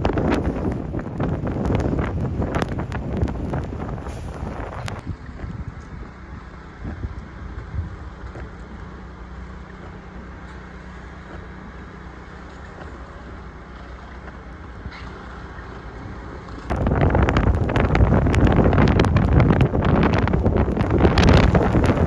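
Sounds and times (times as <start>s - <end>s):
wind buffeting microphone: 0.0s - 8.4s, 16.7s - 22.0s
low rumble: 16.7s - 22.0s.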